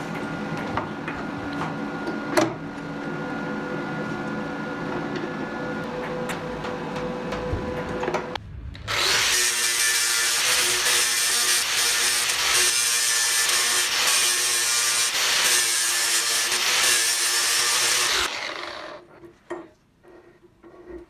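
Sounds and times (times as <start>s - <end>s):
power tool grinding metal: 8.9s - 19.1s.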